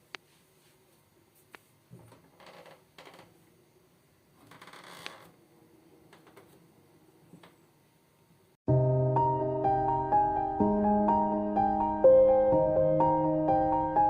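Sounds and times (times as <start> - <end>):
keyboard music: 8.7 - 14.0.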